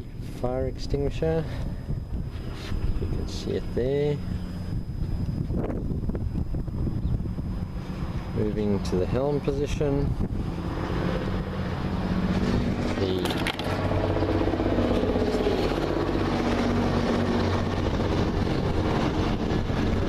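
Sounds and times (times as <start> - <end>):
engine humming: 1.6 - 20.0.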